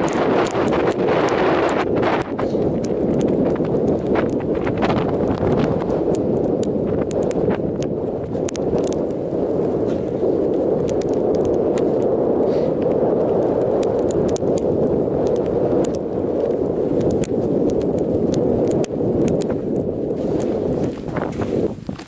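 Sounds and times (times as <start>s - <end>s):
sharp clicks and taps: 0.0s - 9.2s, 10.8s - 12.1s, 13.4s - 16.0s, 17.0s - 19.5s
wind buffeting microphone: 0.0s - 22.0s.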